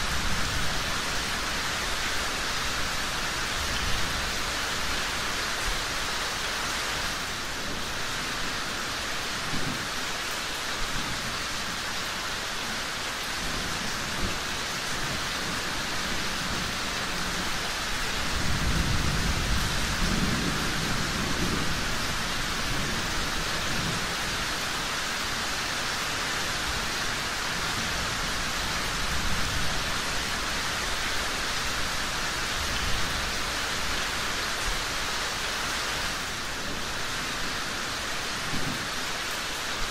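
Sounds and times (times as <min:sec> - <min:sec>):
heavy rain hissing: 0:00.0 - 0:39.9
thunder rumbling: 0:18.2 - 0:24.2.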